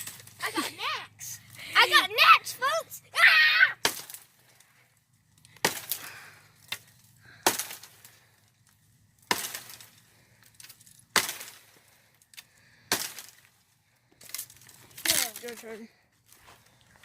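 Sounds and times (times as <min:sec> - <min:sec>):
sharp cracking strikes: 0:03.8 - 0:04.4, 0:05.5 - 0:08.2, 0:09.2 - 0:10.0, 0:11.1 - 0:11.8, 0:12.8 - 0:13.4.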